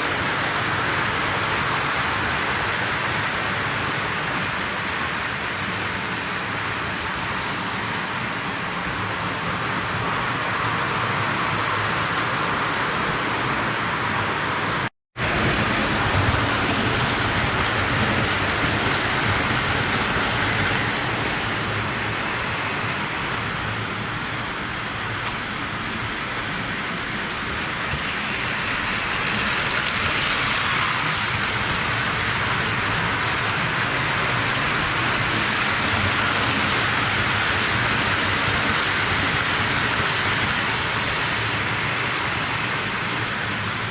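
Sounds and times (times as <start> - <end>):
toy train wheels clattering on rails: 27.2 - 42.0.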